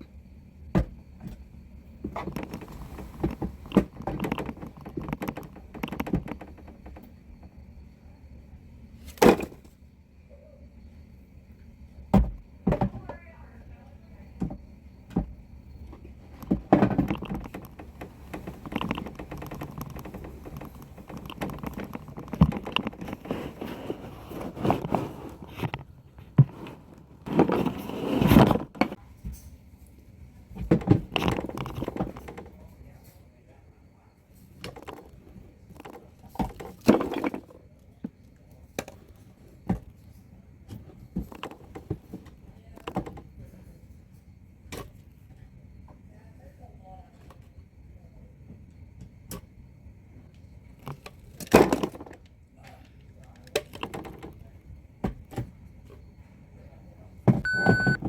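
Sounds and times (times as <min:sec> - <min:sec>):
toy truck knocks and clicks: 0:02.1 - 0:07.1, 0:16.3 - 0:23.7.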